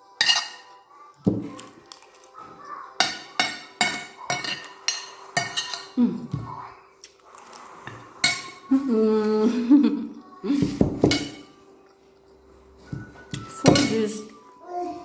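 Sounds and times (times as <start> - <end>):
cutlery scraping a plate: 0.2 - 0.8, 3.0 - 6.0, 7.3 - 8.7, 12.9 - 14.4.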